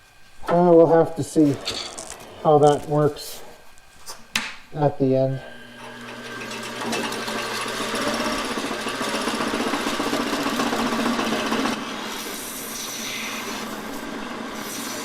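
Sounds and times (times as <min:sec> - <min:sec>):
lathe tool scraping resin: 0:00.8 - 0:03.5, 0:05.5 - 0:15.0
lathe running: 0:05.4 - 0:15.0.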